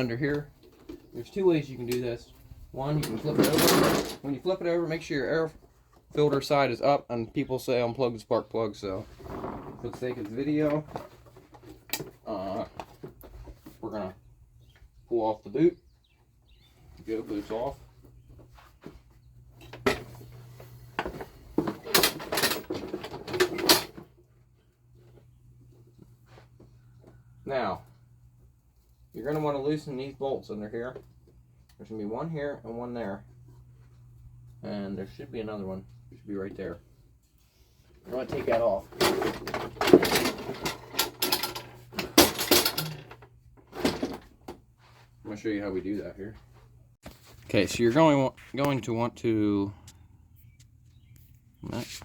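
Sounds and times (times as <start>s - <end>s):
push mower knocking and rattling: 38.3s - 44.4s
hand tools clinking on metal: 38.4s - 43.2s.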